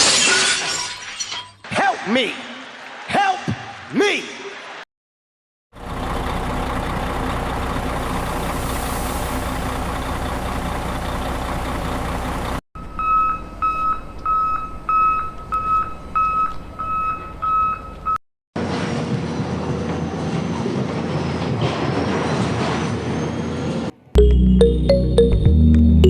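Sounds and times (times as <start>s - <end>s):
heavy vehicle engine running: 5.8s - 14.9s
reversing alarm beeping: 12.8s - 18.2s.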